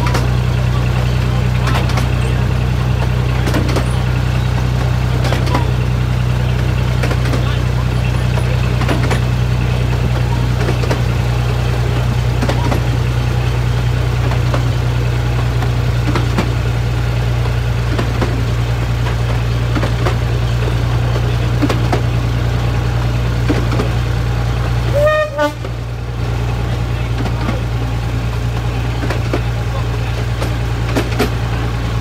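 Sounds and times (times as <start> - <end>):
wheel clicks on rails: 2.9 - 5.8, 28.5 - 31.5.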